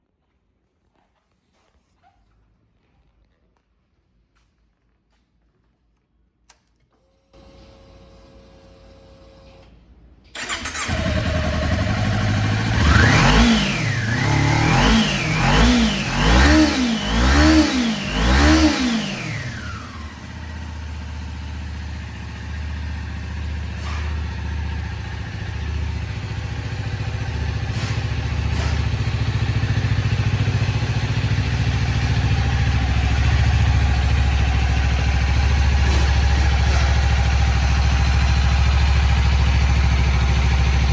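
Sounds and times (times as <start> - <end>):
motorcycle engine revving: 10.4 - 40.9.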